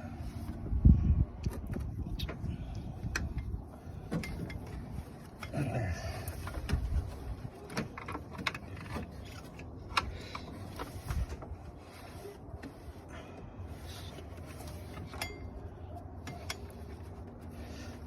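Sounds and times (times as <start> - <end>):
tools and parts clicking: 7.6 - 10.9.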